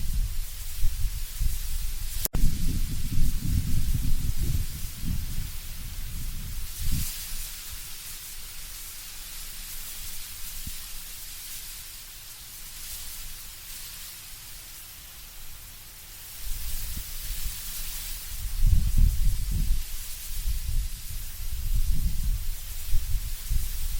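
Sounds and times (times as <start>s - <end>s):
low rumble of wind gusts: 0.0s - 8.8s, 16.4s - 23.9s
leaves rustling in wind: 0.0s - 23.9s.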